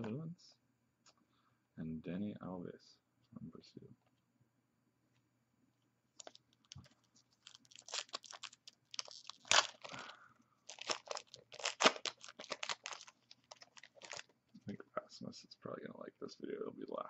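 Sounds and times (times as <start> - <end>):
card pack wrapper crinkling: 6.2 - 14.4.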